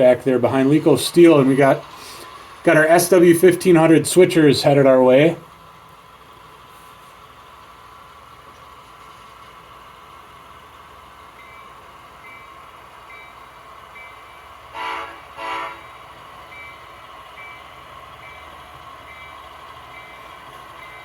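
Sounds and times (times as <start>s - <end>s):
diesel engine hum: 0.0s - 21.0s
model train horn blasts: 14.7s - 16.1s.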